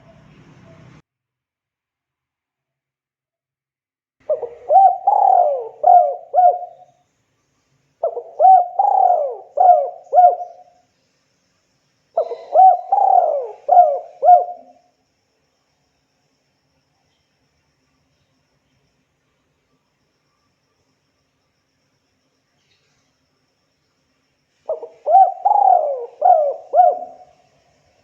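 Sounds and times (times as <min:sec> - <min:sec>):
dove cooing: 0:04.2 - 0:06.9, 0:08.0 - 0:10.8, 0:12.2 - 0:14.8, 0:24.7 - 0:27.5.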